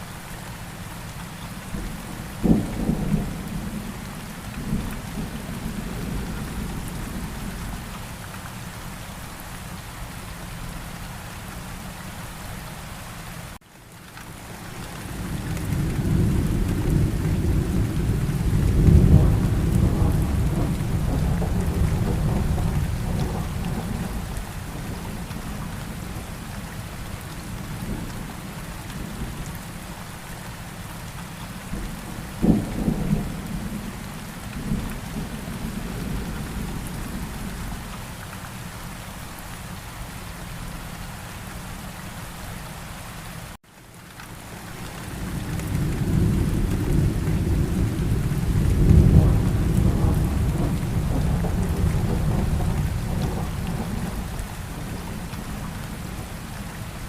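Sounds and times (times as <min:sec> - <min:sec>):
steady rain: 0:00.0 - 0:57.0
rolling thunder: 0:15.3 - 0:26.2, 0:31.7 - 0:37.8, 0:45.2 - 0:56.4
sharp crack of thunder: 0:15.7 - 0:25.3, 0:31.7 - 0:33.9, 0:45.3 - 0:55.5.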